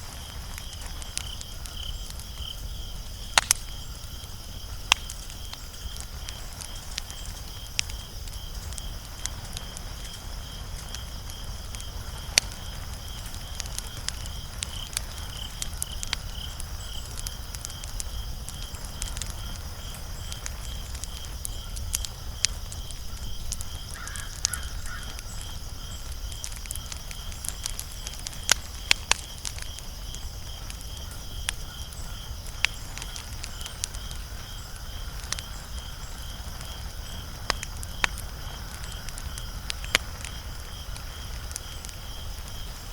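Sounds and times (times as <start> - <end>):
low steady fire rumble: 0.0 - 42.9
wood fire crackling and popping: 0.0 - 42.9.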